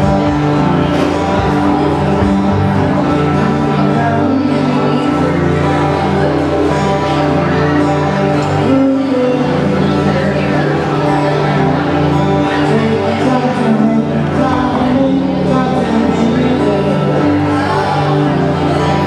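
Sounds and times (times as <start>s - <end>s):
band playing live music: 0.0s - 19.0s.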